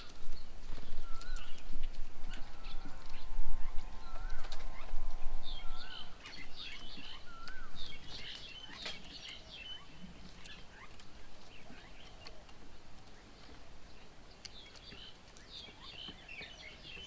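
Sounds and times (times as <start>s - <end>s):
birds chirping and whistling: 0.3s - 9.9s.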